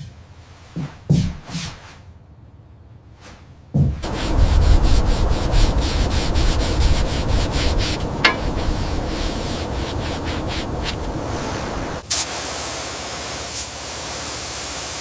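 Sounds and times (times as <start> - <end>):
hand sanding strokes: 4.0 - 12.0.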